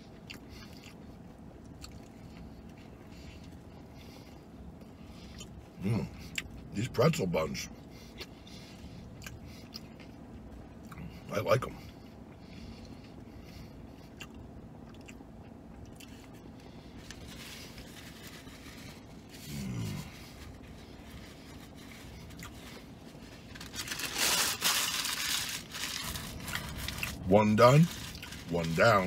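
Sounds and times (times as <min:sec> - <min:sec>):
man chewing: 0:00.0 - 0:06.7, 0:07.8 - 0:11.1, 0:11.8 - 0:27.2, 0:27.8 - 0:28.5
man humming mmm: 0:19.4 - 0:20.1
paper rustling and crumpling: 0:21.2 - 0:29.0.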